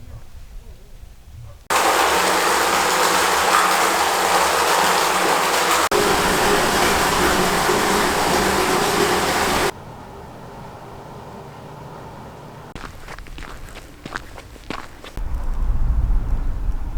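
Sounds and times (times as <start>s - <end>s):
strong wind on microphone: 15.2s - 16.9s.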